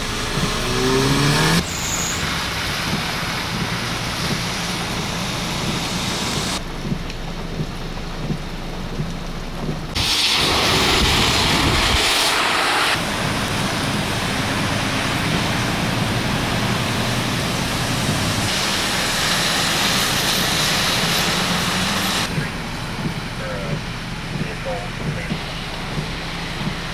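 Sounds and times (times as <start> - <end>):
vehicle engines idling and passing: 0.0 - 10.0, 11.0 - 26.9
heavy rain: 0.0 - 26.9
loud rushing noise: 9.9 - 22.5.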